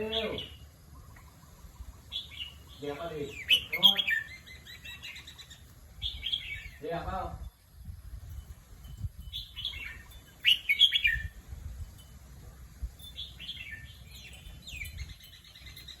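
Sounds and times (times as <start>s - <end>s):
bird warbling song: 0.0s - 7.0s, 9.1s - 11.5s, 13.0s - 16.0s.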